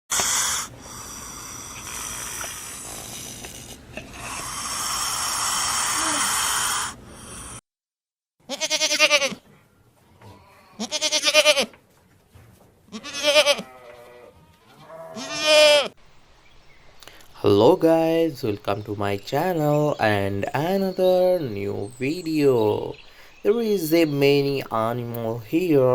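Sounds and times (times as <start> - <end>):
animal bleating: 1.8 - 6.9, 8.4 - 9.5, 10.1 - 11.8, 12.9 - 16.0
noisy hiss with high tones: 16.0 - 25.9.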